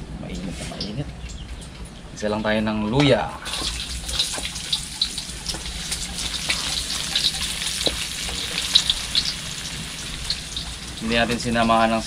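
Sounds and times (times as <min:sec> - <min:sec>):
ginger sizzling in a pan: 0:03.4 - 0:12.0
sharp crackles and pops: 0:03.5 - 0:11.6.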